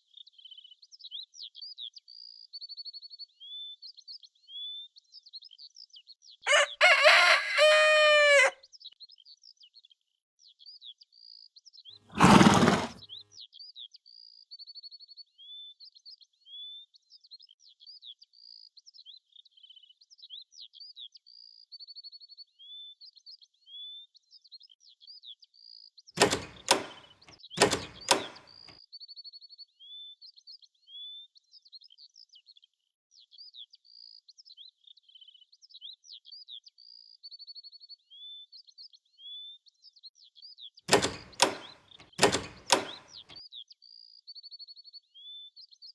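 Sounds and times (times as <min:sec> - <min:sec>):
sharp knocks: 0:26.2 - 0:28.5, 0:40.9 - 0:43.2.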